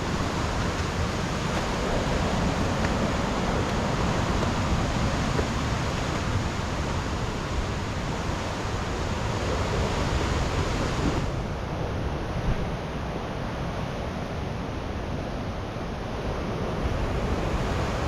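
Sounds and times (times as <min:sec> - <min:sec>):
sea surf rushing: 0:00.0 - 0:11.4
wind buffeting microphone: 0:00.0 - 0:12.7.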